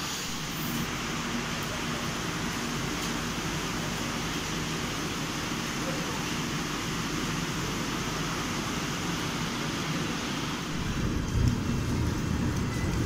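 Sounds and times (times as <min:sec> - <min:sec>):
rain: 0:00.0 - 0:13.0
train rushing: 0:10.2 - 0:13.0
low rumble: 0:10.8 - 0:13.0.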